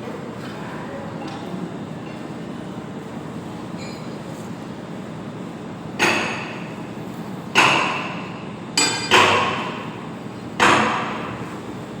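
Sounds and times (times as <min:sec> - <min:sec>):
hammer striking steel: 0:07.6 - 0:08.2, 0:08.8 - 0:09.8.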